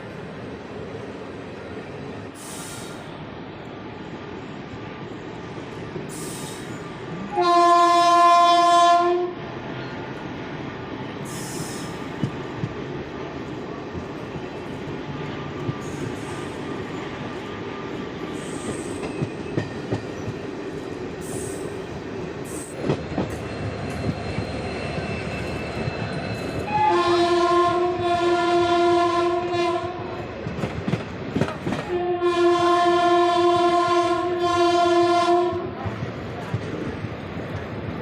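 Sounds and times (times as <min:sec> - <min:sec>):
train running with rail clicks: 0:00.0 - 0:38.0
locomotive horn blasts: 0:07.3 - 0:09.4, 0:26.7 - 0:30.1, 0:31.9 - 0:35.7.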